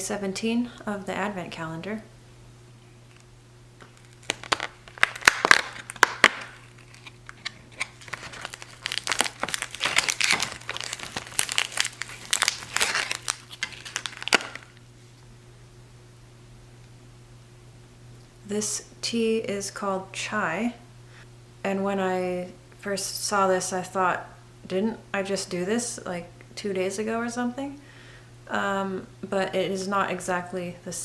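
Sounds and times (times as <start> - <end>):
cardboard and paper crinkling: 3.8 - 14.8.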